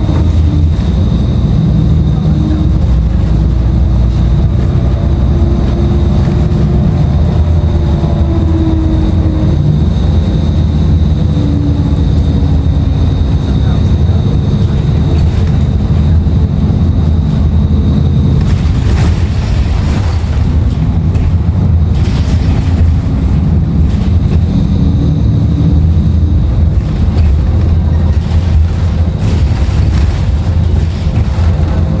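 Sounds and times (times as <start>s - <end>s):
faint high whine: 0.0s - 20.7s
bus diesel engine running: 0.0s - 32.0s
road noise: 0.0s - 32.0s.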